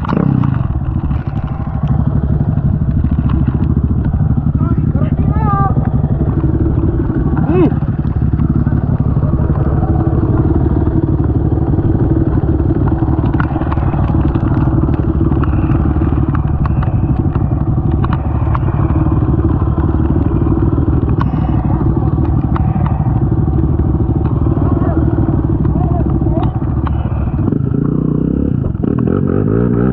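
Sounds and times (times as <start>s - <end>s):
clicks and clatter: 0.0s - 4.8s, 5.7s - 28.0s
atv engine running: 0.0s - 29.9s.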